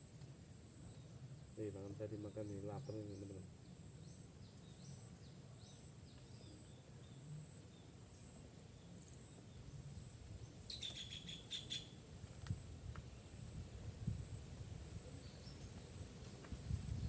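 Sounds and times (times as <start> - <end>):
bird chirps: 10.6 - 12.0.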